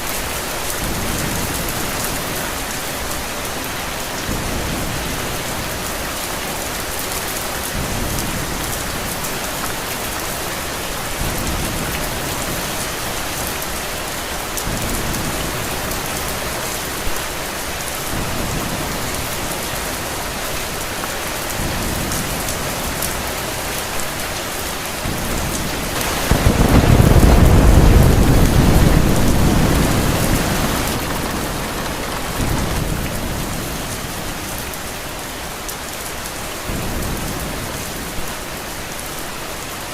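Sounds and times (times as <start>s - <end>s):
heavy rain falling: 0.0s - 39.9s
low rumble of thunder: 25.0s - 34.4s.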